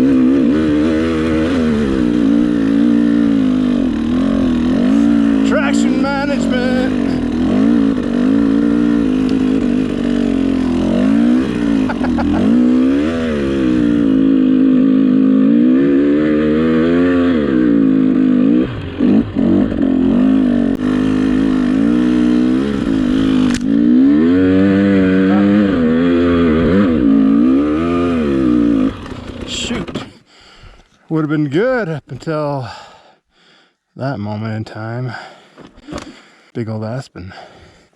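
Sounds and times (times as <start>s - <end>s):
dirt bike engine revving: 0.0s - 30.2s.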